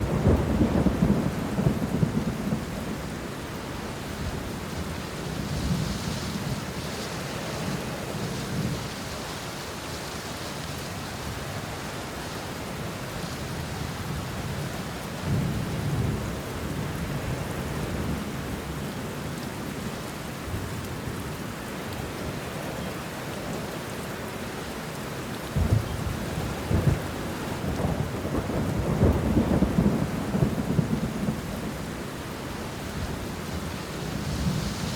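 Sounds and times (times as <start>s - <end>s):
thunder rumbling: 0.0s - 3.3s, 25.6s - 32.1s
rain on leaves: 0.0s - 34.9s.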